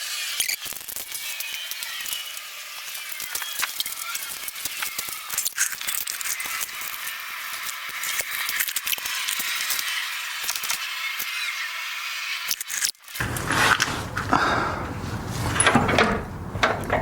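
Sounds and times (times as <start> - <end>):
metallic clinks and rattles: 13.2 - 17.0.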